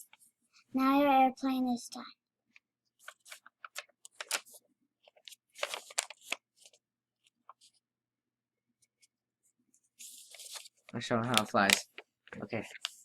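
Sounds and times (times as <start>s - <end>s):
paper crinkling and rustling: 3.0s - 7.8s, 9.9s - 13.0s.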